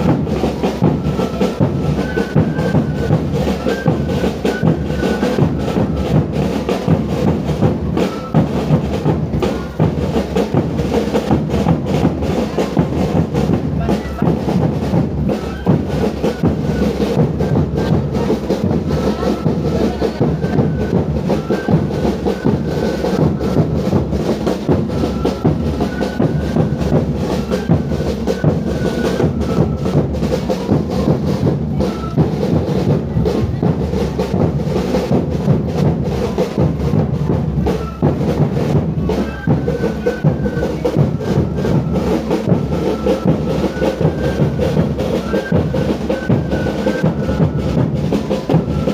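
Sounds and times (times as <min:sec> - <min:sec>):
drums beating: 0:00.0 - 0:48.9
thin high melody: 0:15.2 - 0:33.4.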